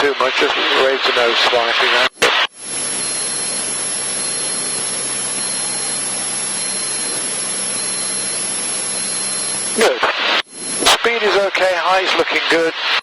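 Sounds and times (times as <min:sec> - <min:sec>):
aircraft engine hum: 0:02.6 - 0:09.8.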